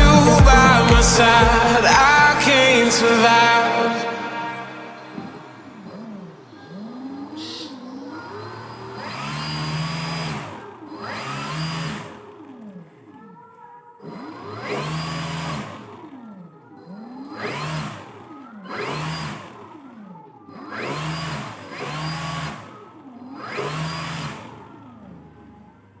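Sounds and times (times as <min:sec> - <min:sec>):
electric model airplane motor whine: 0:05.2 - 0:13.2, 0:14.0 - 0:26.0.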